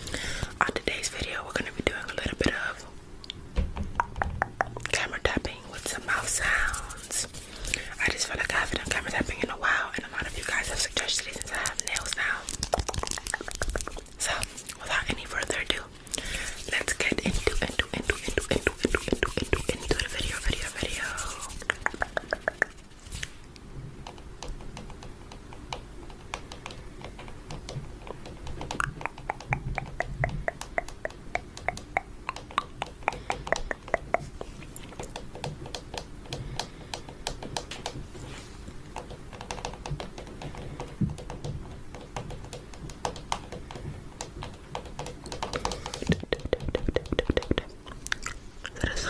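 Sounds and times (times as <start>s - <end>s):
fingernails tapping on camera: 10.2s - 15.6s, 16.2s - 22.9s, 24.1s - 34.4s, 39.0s - 47.7s.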